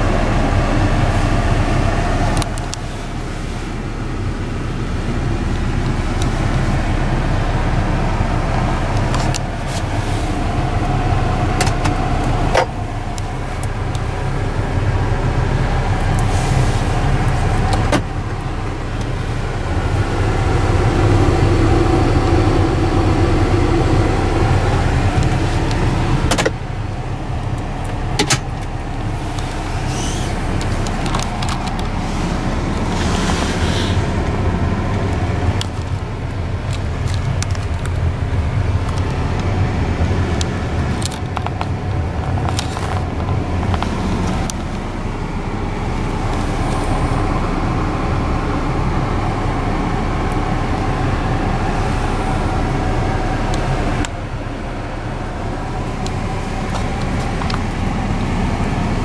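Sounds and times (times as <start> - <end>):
car engine idling: 0.0 - 59.0
clicks and knocks in car interior: 10.9 - 14.1, 17.0 - 18.2, 24.7 - 26.6, 40.4 - 45.0.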